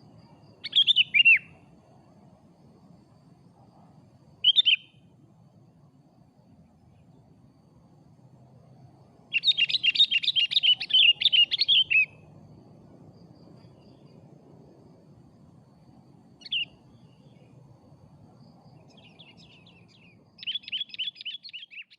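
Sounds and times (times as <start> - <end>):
bulbul calling and chirping: 0.6 - 1.5, 4.4 - 4.9, 9.3 - 12.2, 16.4 - 16.7, 18.9 - 21.9.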